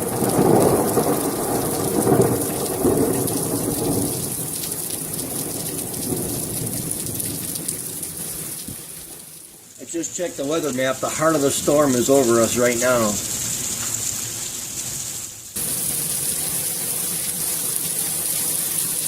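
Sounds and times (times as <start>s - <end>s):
rolling thunder: 0.0s - 8.9s
heavy rain hissing: 0.0s - 19.0s.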